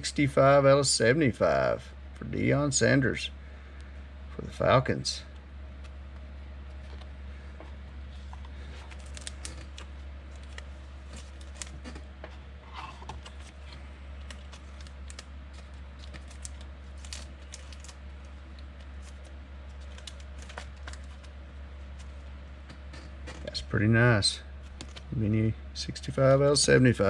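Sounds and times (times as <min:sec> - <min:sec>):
steady low hum: 0:00.0 - 0:27.0
cards being handled: 0:05.8 - 0:23.6, 0:24.6 - 0:25.2.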